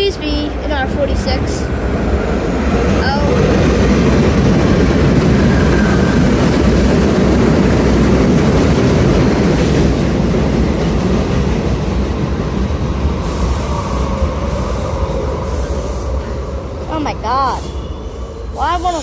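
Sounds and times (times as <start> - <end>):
subway train arriving: 0.0 - 19.0.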